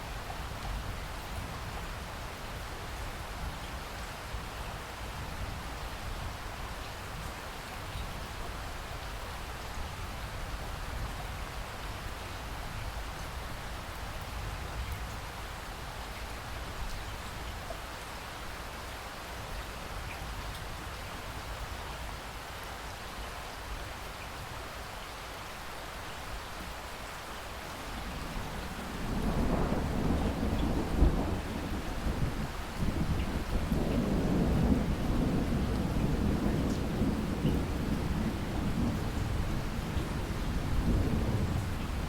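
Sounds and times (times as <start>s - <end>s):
steady rain falling: 0.0s - 42.0s
thunder rumbling: 27.9s - 42.0s.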